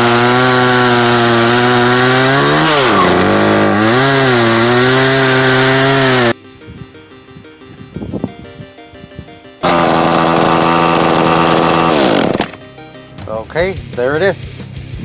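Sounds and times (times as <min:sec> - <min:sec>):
chainsaw engine running: 0:00.0 - 0:06.4, 0:09.6 - 0:12.6
background music: 0:04.0 - 0:15.0.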